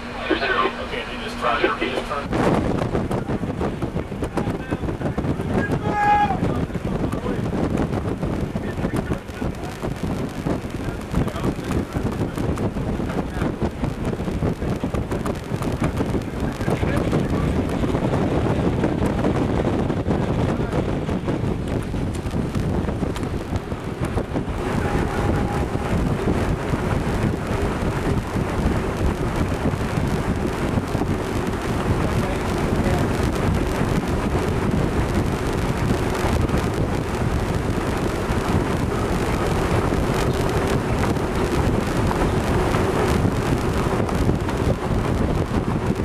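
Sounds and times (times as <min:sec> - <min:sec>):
faint steady hum: 0:00.0 - 0:02.3
wind buffeting microphone: 0:00.0 - 0:46.0.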